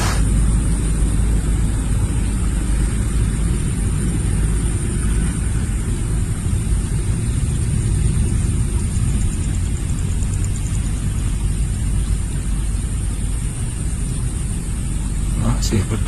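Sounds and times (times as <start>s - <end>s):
thin high hiss: 0.0s - 0.3s.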